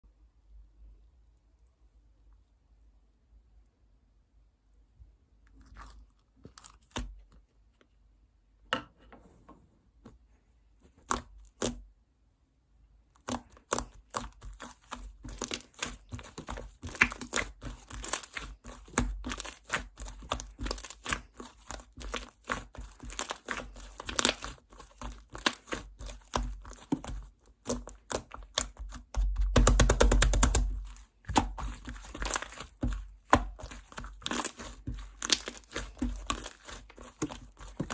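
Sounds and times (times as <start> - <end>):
slime clicking and crackling: 13.1 - 37.9.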